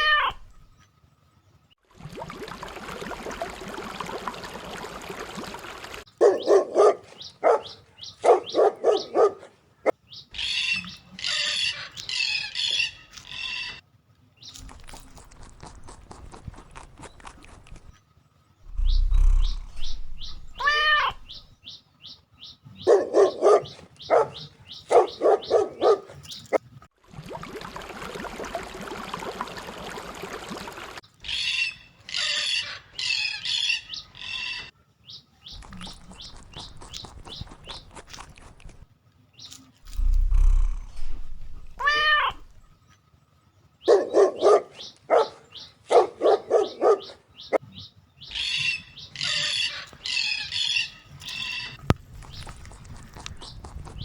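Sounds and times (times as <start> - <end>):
birds chirping: 0.0 - 1.7, 3.0 - 13.8, 14.4 - 26.6, 30.5 - 54.0
dog barking: 6.2 - 9.6, 22.8 - 26.2, 43.8 - 47.6
drawn-out rising and falling call: 18.6 - 21.8, 35.5 - 38.8, 39.5 - 42.7, 43.8 - 54.0.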